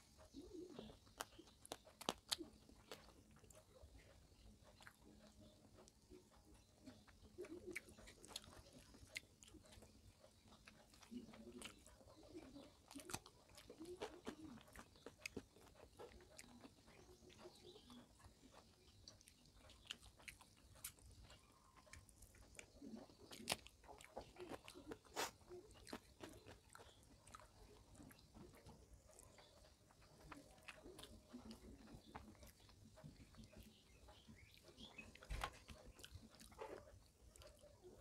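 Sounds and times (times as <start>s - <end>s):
faint chewing: 0.0s - 38.0s
sharp mouth clicks: 21.9s - 27.4s.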